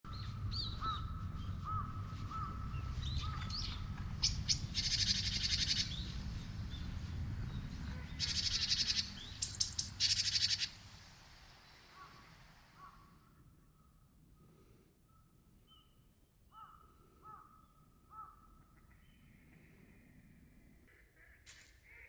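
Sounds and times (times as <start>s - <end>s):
low steady rumble: 0.1s - 14.3s
birds chirping: 0.1s - 20.0s
rapid rattling bird chatter: 1.7s - 10.8s.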